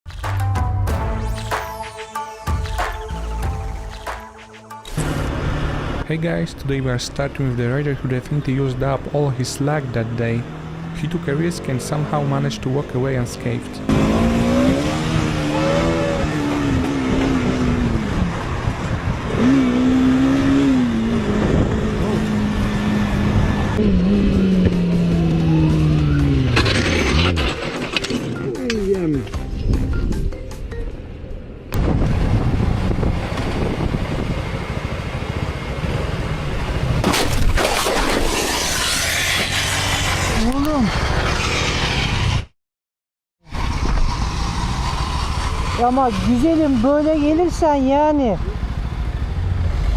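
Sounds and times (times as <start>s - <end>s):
motorcycle engine revving: 4.8s - 7.9s, 9.7s - 29.1s, 38.3s - 42.5s, 43.4s - 49.9s.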